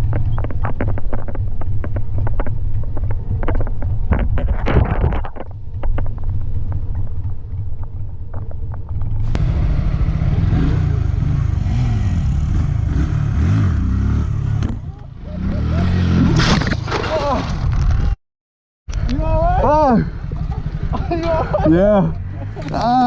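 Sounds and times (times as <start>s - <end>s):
wind rumble on microphone: 0.0s - 12.8s
motorcycle engine running: 0.0s - 16.2s, 18.9s - 23.0s.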